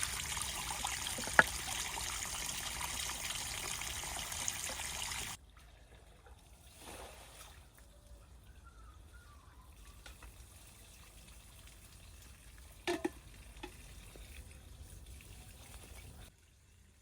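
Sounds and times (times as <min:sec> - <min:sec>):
faint trickling water: 0:00.0 - 0:17.0.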